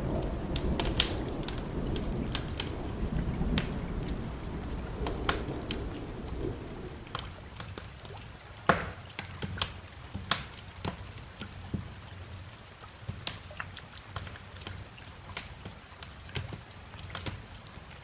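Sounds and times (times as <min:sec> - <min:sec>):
thunder rumble: 0:00.0 - 0:07.8
fire pops: 0:00.0 - 0:07.9
rain drips: 0:00.0 - 0:18.0.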